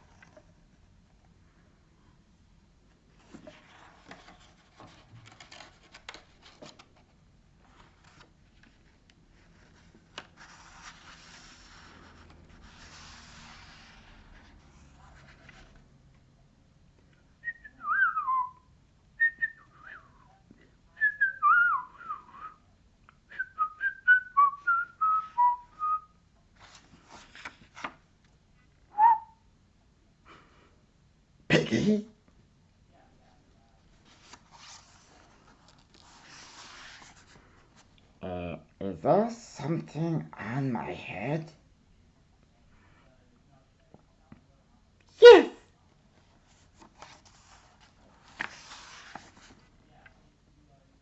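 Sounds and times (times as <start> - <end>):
soft rustling: 2.9 - 16.0, 26.5 - 28.8, 33.5 - 38.2, 46.0 - 50.2
whistled bird-like chirps: 29.0 - 29.4.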